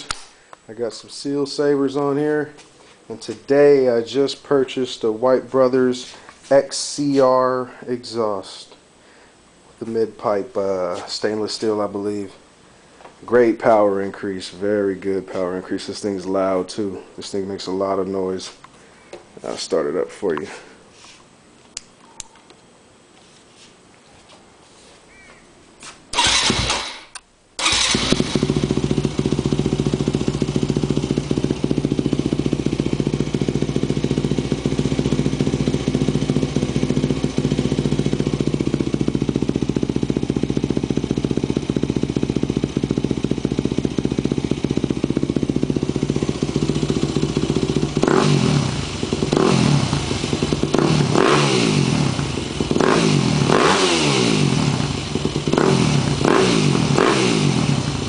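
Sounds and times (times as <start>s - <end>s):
motorcycle engine idling and revving: 26.2s - 27.0s, 27.6s - 58.0s.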